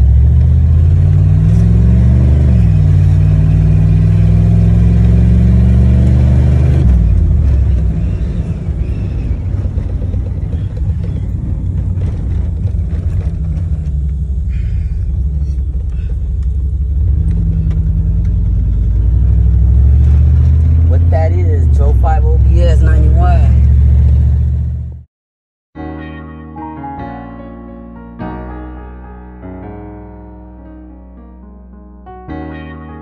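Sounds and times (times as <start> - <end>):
truck engine revving: 0.0 - 25.1.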